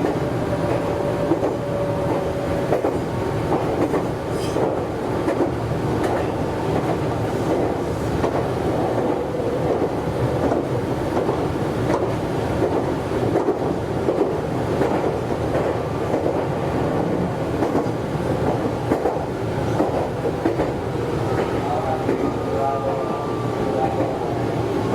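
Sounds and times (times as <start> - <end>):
rail joint clicks: 0.0 - 24.9
wheels rumbling on rail: 0.0 - 24.9.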